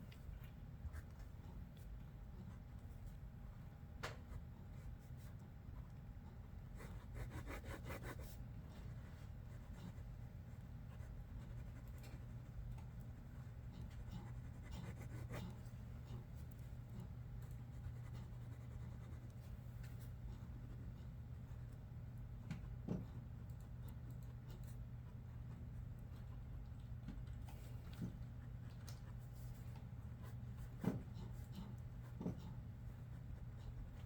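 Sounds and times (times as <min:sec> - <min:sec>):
steady low hum: 0:00.0 - 0:34.0
pencil scratching on paper: 0:06.8 - 0:08.4, 0:13.7 - 0:16.3.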